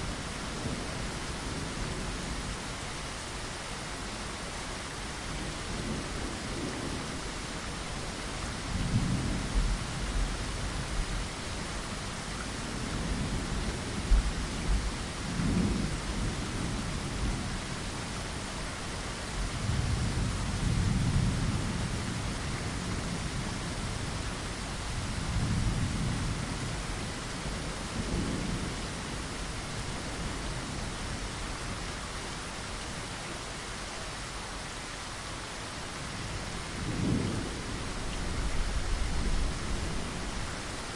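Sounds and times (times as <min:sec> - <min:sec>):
rain pattering on a window: 0:00.0 - 0:40.9
thunder rumbling: 0:36.2 - 0:40.9.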